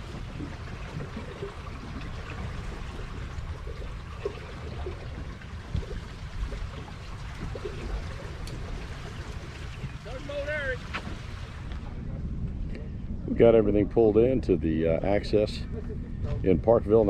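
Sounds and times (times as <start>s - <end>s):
river water lapping: 0.0s - 12.2s
wind rumble on microphone: 0.0s - 17.0s.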